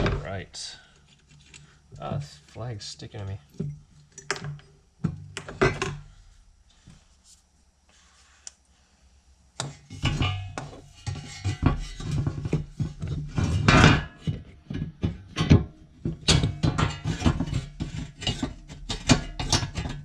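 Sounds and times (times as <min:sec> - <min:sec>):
clattering knocking and scraping: 0:09.6 - 0:20.0.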